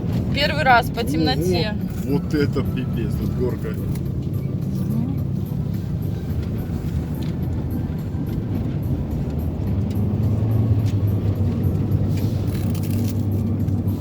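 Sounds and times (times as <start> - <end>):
car engine droning: 0.0 - 14.0
road and tyre noise: 0.0 - 14.0.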